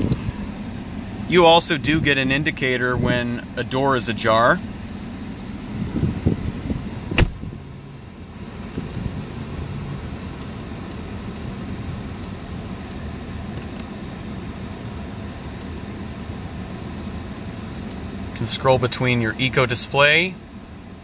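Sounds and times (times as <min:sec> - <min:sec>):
car engine idling hum: 0:00.0 - 0:21.0
sharp knock: 0:07.2 - 0:07.4.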